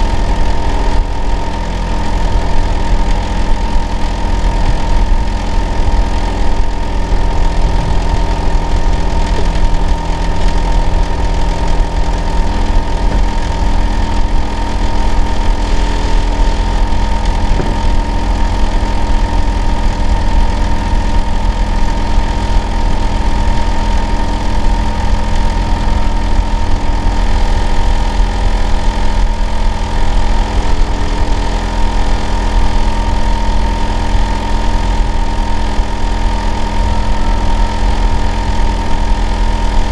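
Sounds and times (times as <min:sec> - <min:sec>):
constant whine: 0:00.0 - 0:39.9
air conditioner unit humming: 0:07.5 - 0:20.0.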